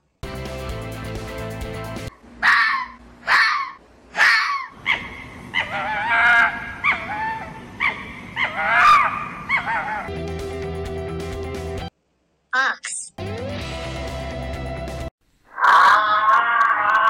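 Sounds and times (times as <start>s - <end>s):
hippopotamus calling: 2.4s - 10.2s.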